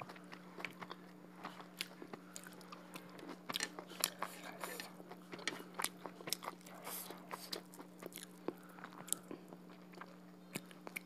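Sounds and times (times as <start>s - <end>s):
faint low hum: 0.0s - 11.0s
wet chewing clicks: 0.0s - 11.0s.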